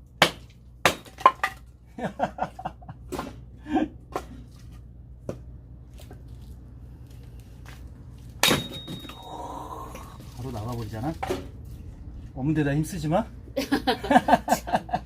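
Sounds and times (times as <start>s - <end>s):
people laughing: 13.6s - 15.0s.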